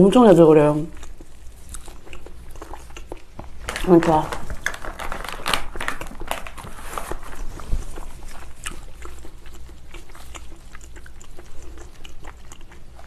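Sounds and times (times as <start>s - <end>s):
chewing and wet mouth smacking: 0.9s - 13.0s.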